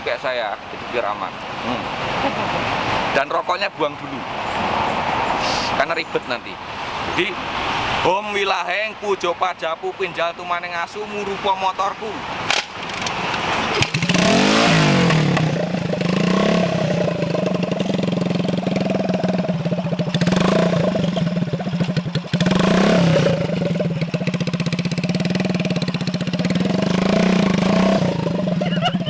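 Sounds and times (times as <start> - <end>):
motorcycle engine revving: 12.4 - 29.0.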